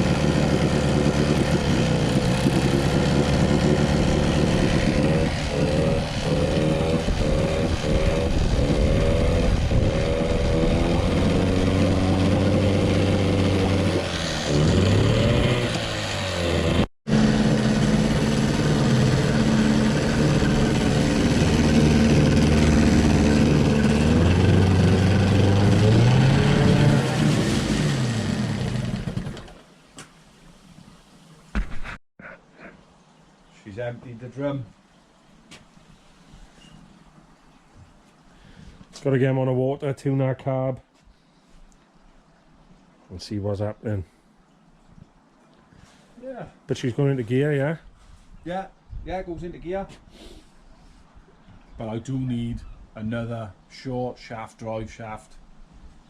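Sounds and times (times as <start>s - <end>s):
outboard motor revving: 0.0s - 29.7s.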